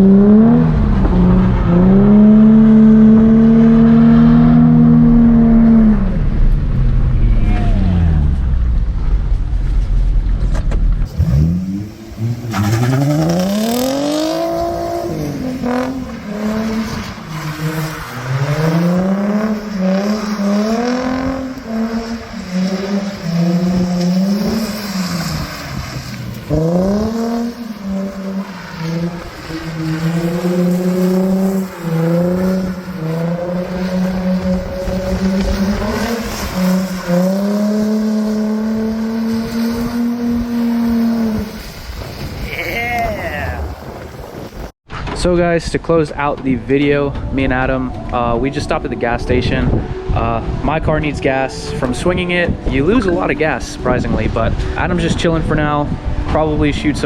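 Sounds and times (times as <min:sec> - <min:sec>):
car engine revving: 0:00.0 - 0:44.8
tyre noise on wet road: 0:00.0 - 0:47.9.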